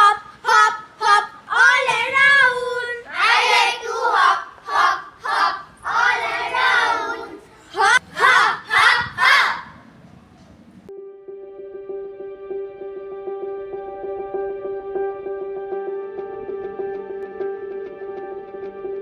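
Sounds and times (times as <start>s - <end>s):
children singing a chant: 0.0s - 9.8s.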